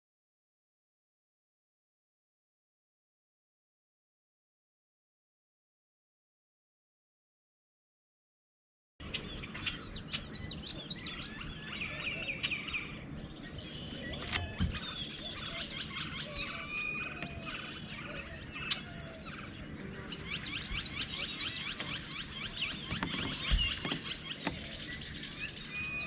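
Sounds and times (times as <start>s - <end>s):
birds chirping and singing: 9.0s - 26.0s
low background rush: 9.0s - 26.0s
sharp click: 14.2s - 14.8s.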